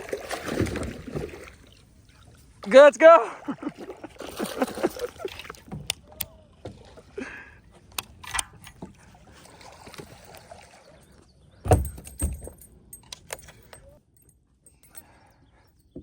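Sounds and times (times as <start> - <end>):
clicks and knocks on a kayak: 5.4 - 6.9.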